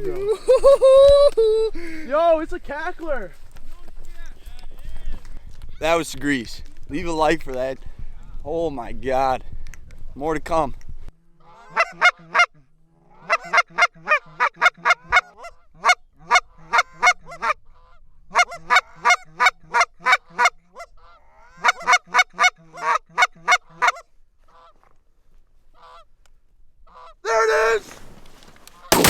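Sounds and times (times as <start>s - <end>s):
goose call honks: 11.4s - 24.7s.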